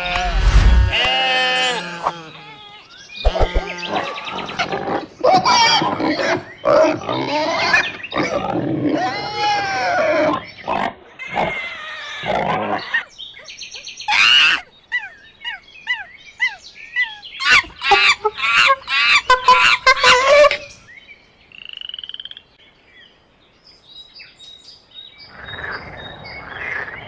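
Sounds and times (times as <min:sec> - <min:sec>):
harsh animal calls: 0:00.0 - 0:13.1
sharp animal calls: 0:03.2 - 0:13.1.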